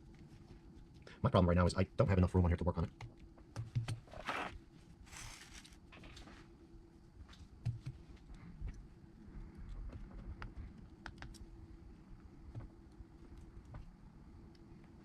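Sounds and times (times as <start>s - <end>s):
faint steady hum: 0.0s - 15.0s
scraping rustles on workbench: 4.1s - 6.5s.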